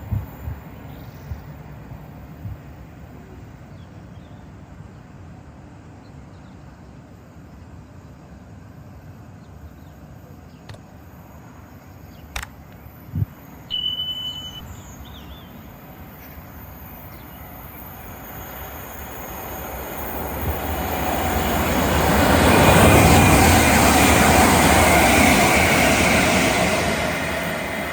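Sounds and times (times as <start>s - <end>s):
train rumble: 0.0s - 27.9s
sharp clicks: 12.3s - 12.8s
high whistle-like note: 13.7s - 15.1s.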